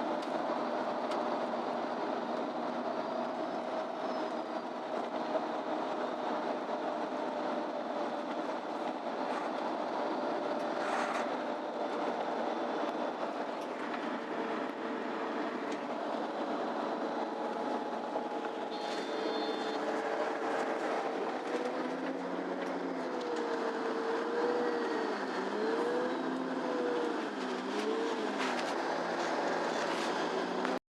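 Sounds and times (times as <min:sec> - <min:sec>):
bus engine and road noise: 0:00.0 - 0:30.8
faint whine: 0:00.0 - 0:30.8
high beep: 0:18.7 - 0:19.8.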